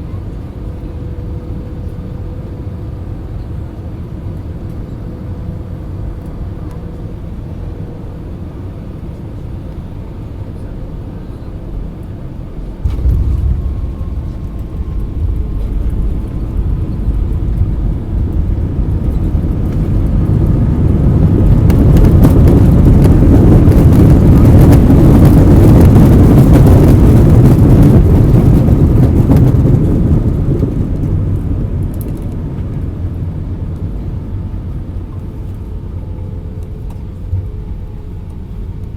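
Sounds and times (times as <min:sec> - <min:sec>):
airliner wheels rumbling on runway: 0:00.0 - 0:38.9
jet engine reverse thrust roar: 0:11.0 - 0:38.9.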